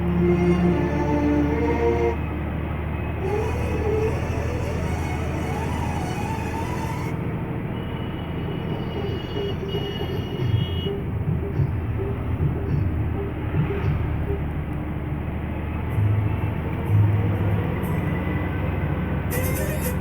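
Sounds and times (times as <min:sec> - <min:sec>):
road noise in cab: 0:00.0 - 0:20.0
truck diesel engine running: 0:00.0 - 0:20.0.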